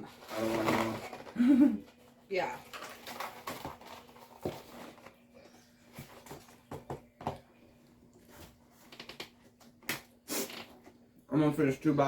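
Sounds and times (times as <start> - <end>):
clicks and rustles of cardboard boxes: 2.7 - 5.2.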